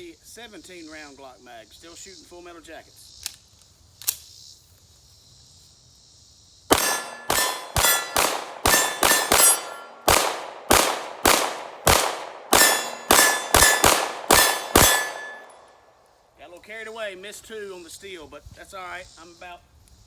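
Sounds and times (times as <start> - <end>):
pistol shots: 6.7 - 15.6
steel target ringing: 6.7 - 15.7.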